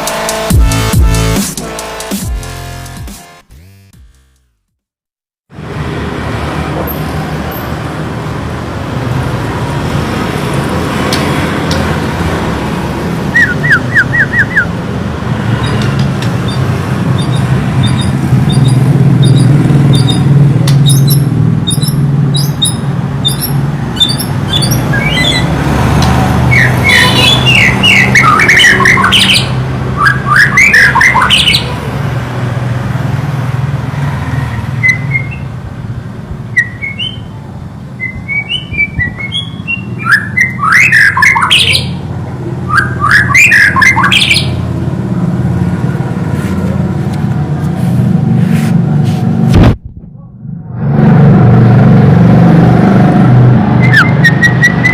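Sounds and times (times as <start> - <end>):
bird singing whistles: 13.3 - 14.7, 17.2 - 25.5, 26.5 - 31.6, 34.8 - 35.5, 36.6 - 37.3, 38.0 - 41.9, 42.7 - 44.5, 53.8 - 54.9
steady low rumble: 46.8 - 52.4.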